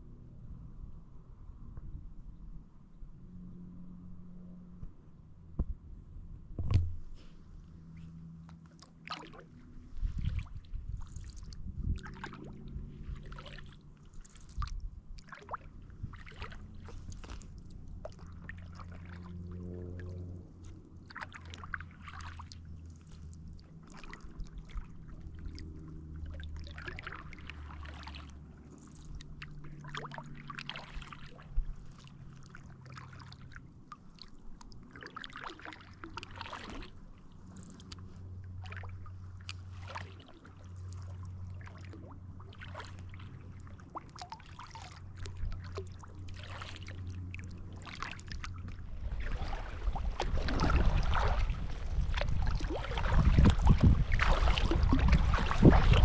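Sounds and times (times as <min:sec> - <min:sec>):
steady low rumble: 0:00.0 - 0:56.0
paddle splashing water: 0:08.6 - 0:56.0.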